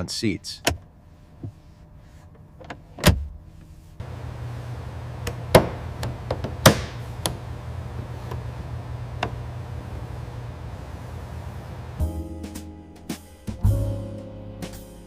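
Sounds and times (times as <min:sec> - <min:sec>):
steady low hum: 0:00.0 - 0:12.1
sharp knocks and clicks: 0:05.2 - 0:07.4.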